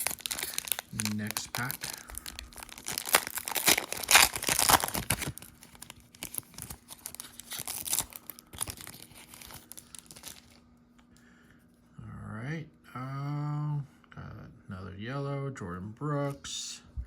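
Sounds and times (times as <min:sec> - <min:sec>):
foil pack tearing open: 0:00.0 - 0:10.6
wrapper crinkling: 0:00.0 - 0:10.6.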